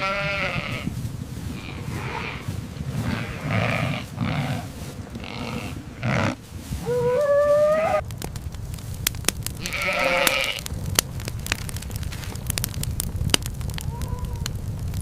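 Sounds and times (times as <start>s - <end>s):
animals bleating: 0.0s - 0.9s, 1.5s - 8.0s, 9.6s - 10.7s
fire crackling and popping: 0.0s - 15.0s.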